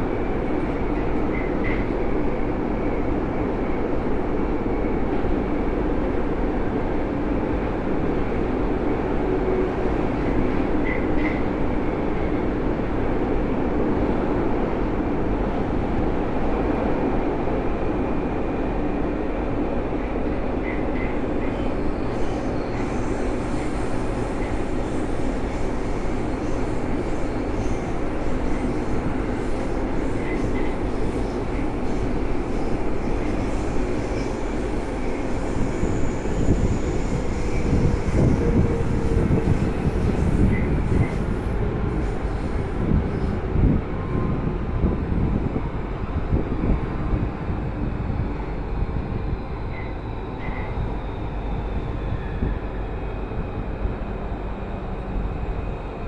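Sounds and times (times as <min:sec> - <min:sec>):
metro train wheels rumbling: 0:00.0 - 0:56.0.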